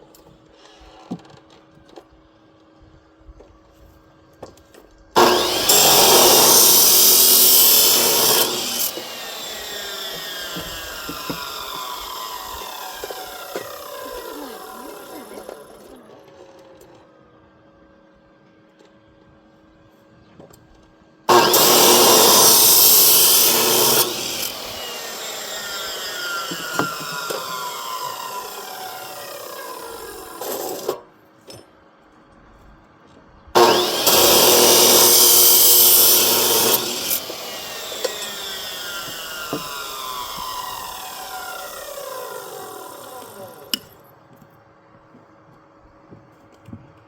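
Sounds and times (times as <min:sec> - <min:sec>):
power saw cutting: 0:05.2 - 0:16.3, 0:21.3 - 0:31.1, 0:33.6 - 0:44.0.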